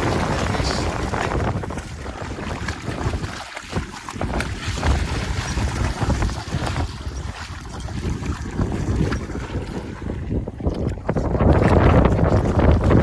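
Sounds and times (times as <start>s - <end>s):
surf washing: 0.0s - 13.0s
wind gusting against microphone: 0.0s - 13.0s.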